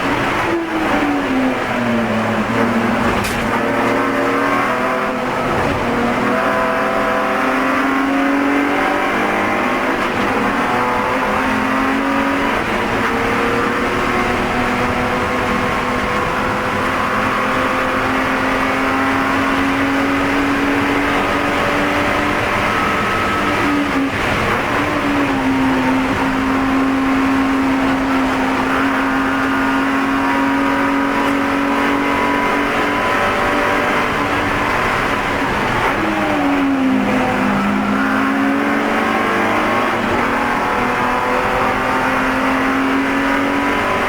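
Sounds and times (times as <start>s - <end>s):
race car engine at high revs: 0.0s - 44.0s.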